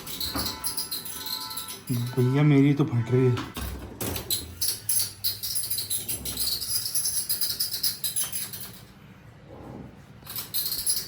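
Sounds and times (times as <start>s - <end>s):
high-pitched metal rattle: 0.0s - 2.3s, 4.0s - 9.0s, 10.2s - 11.0s.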